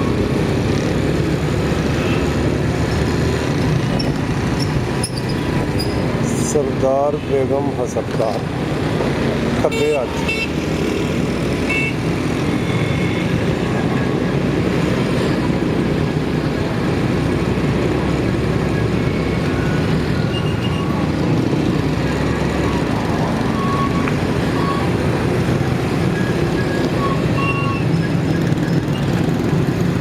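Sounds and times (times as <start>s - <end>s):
motorcycle engine and road noise: 0.0s - 30.0s
short high tones from traffic: 19.1s - 21.0s, 22.5s - 25.0s, 26.0s - 29.2s.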